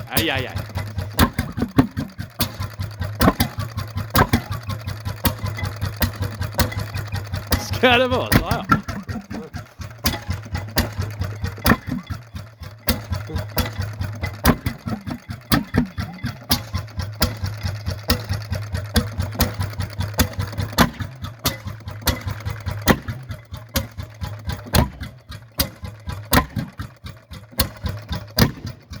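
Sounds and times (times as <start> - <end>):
engine knocking: 0.0 - 29.0
people talking: 0.1 - 0.7, 7.6 - 9.5, 13.2 - 13.5.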